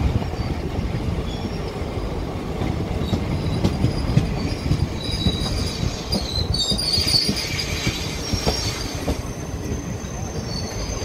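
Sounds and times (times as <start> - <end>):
train coaches rumbling past: 0.0 - 11.0
metallic wheel squeal: 3.4 - 11.0.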